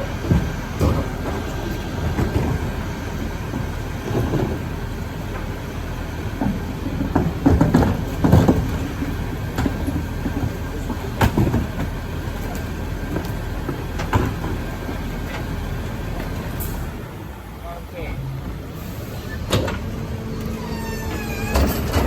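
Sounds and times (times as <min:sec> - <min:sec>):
garbage truck engine running: 0:00.0 - 0:22.0.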